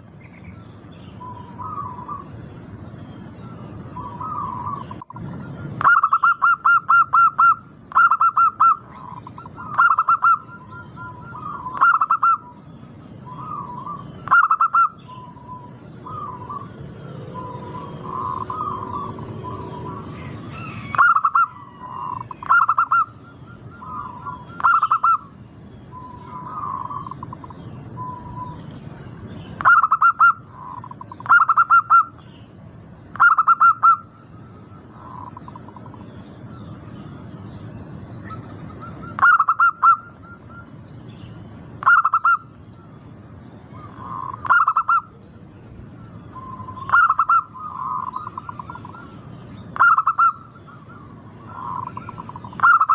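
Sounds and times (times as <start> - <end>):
low background noise: 0.0 - 52.9
dove cooing: 1.2 - 2.3, 4.0 - 12.6, 13.2 - 25.3, 25.9 - 28.7, 29.6 - 32.2, 33.1 - 34.1, 34.8 - 36.7, 38.2 - 40.7, 41.8 - 42.5, 43.7 - 45.3, 46.0 - 52.9.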